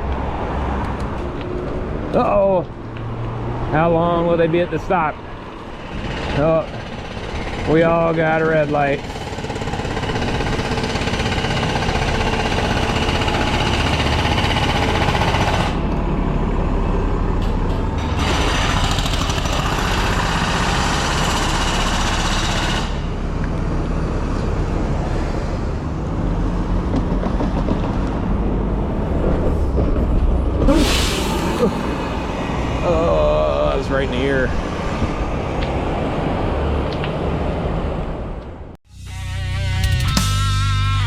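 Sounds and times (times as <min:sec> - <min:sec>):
bus engine rumbling: 0:00.0 - 0:38.8
air-brake hiss: 0:30.6 - 0:32.6.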